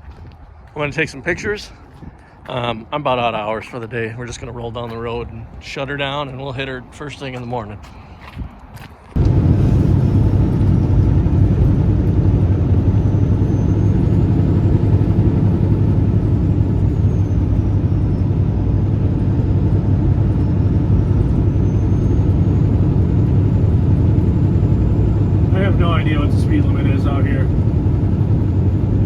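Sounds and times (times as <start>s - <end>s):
road rumble: 0.0s - 29.0s
truck diesel engine: 9.1s - 29.0s.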